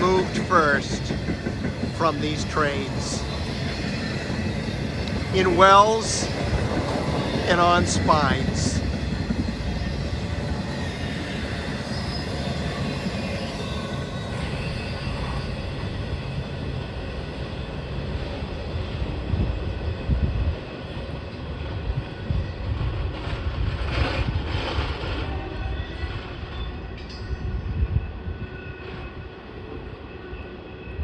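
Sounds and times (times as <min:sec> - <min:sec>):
freight train wheels rumbling on rail: 0:00.0 - 0:31.0.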